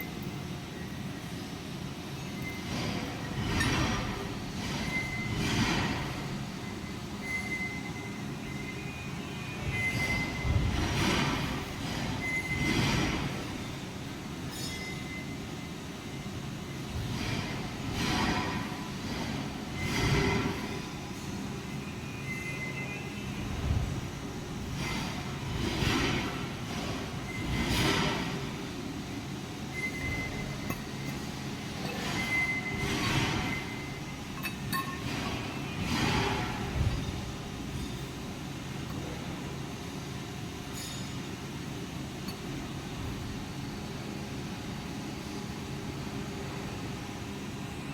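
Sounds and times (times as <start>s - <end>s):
sharp metallic clinks: 14.5s - 15.2s.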